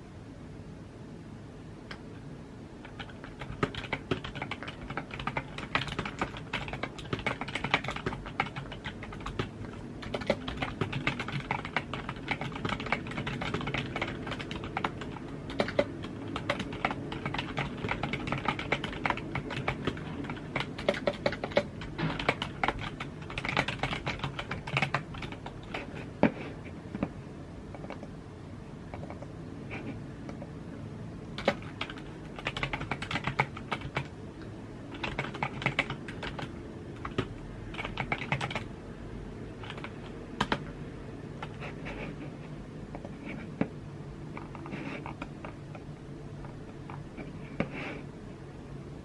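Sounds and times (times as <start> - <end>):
steady low hum: 0.0 - 49.0
keyboard typing: 2.8 - 28.1, 28.9 - 30.5, 31.4 - 34.2, 34.9 - 38.7, 39.6 - 40.8, 44.3 - 47.7.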